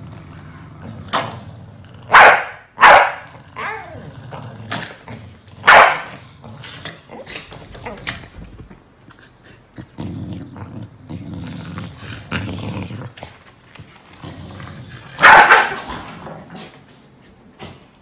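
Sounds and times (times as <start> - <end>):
dog growling: 0.0 - 2.2, 3.2 - 16.8
dog barking loudly: 2.1 - 3.2, 5.6 - 6.1, 15.2 - 15.9.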